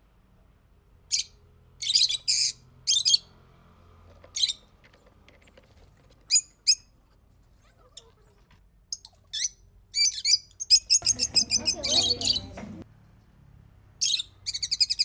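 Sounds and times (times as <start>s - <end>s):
bird giving harsh high chirps: 9.0s - 12.6s.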